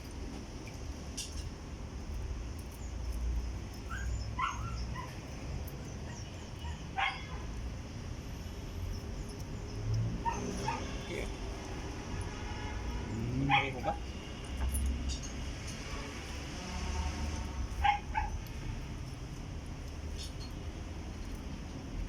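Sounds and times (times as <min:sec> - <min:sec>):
dog barking and yipping: 0:03.8 - 0:05.4, 0:06.0 - 0:07.6, 0:10.1 - 0:11.0, 0:13.4 - 0:14.0, 0:17.7 - 0:18.5.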